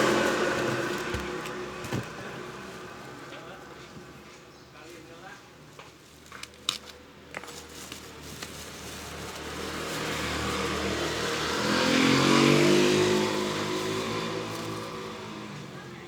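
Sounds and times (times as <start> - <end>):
vehicle engine passing by: 0.0 - 3.5, 9.0 - 15.8.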